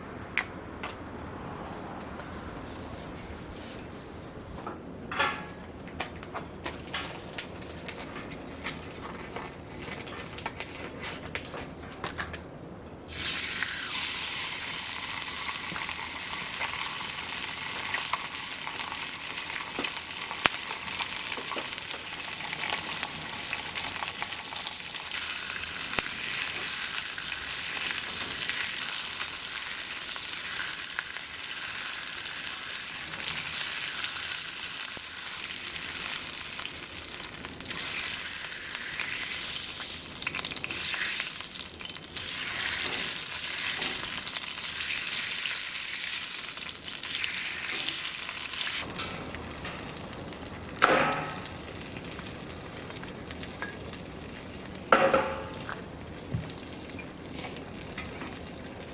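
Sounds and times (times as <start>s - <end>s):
faint crackles and clicks: 5.8s - 13.0s
food sizzling on a grill: 13.1s - 58.9s.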